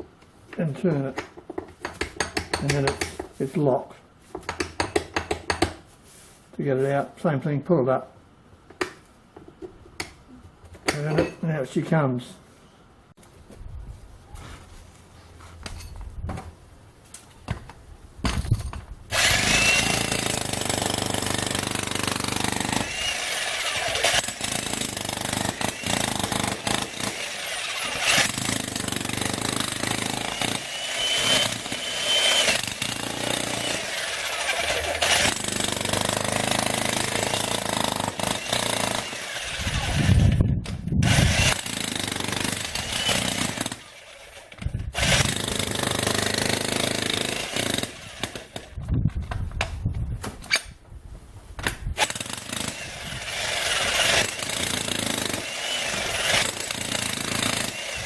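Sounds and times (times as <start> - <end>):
electric jackhammer hammering: 19.1 - 40.3, 41.0 - 48.7, 52.0 - 58.0.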